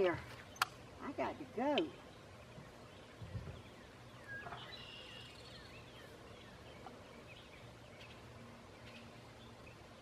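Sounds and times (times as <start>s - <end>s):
faint bird calls: 1.9s - 9.6s.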